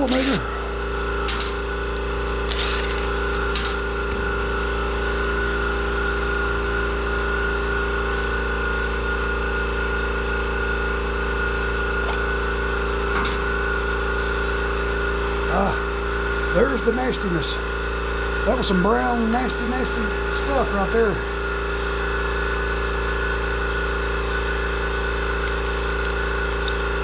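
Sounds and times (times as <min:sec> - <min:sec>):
hand tools clicking on metal: 0:00.0 - 0:00.4, 0:01.3 - 0:01.6, 0:02.5 - 0:03.9
motor humming: 0:00.0 - 0:27.0.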